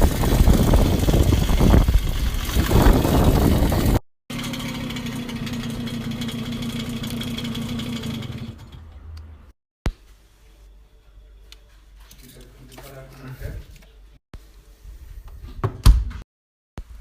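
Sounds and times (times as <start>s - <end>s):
moped engine running: 0.0s - 9.0s.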